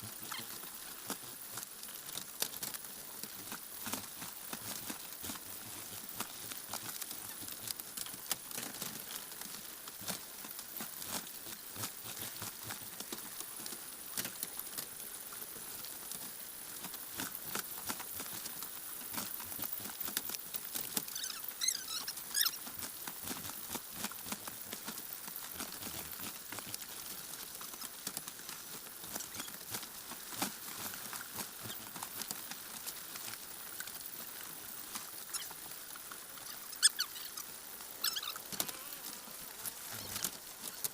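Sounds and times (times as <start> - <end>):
high pitched chicken calls: 21.1 - 22.6, 36.5 - 38.5.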